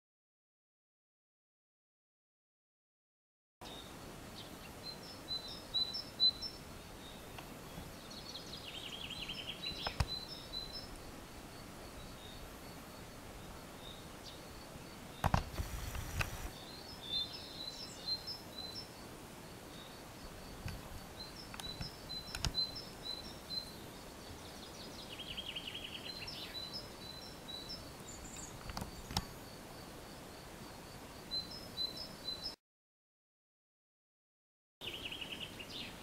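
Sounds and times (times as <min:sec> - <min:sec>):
birds chirping: 0:03.6 - 0:19.0, 0:19.6 - 0:29.5
rustling or knocking burst: 0:15.2 - 0:16.5
bird trill: 0:21.2 - 0:23.8.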